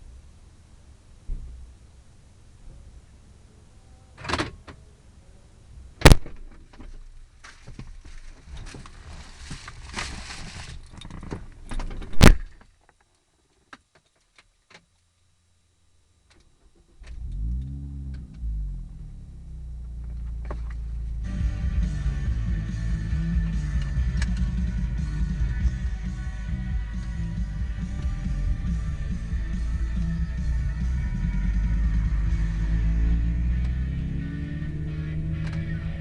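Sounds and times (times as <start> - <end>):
rustling clatter: 6.2 - 12.7
car engine starting and idling: 16.6 - 36.0.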